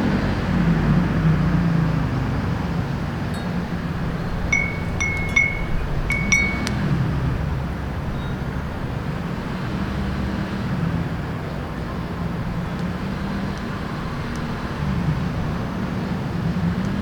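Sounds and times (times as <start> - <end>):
city traffic hum: 0.0 - 17.0
wind chime tinkling: 3.4 - 7.0.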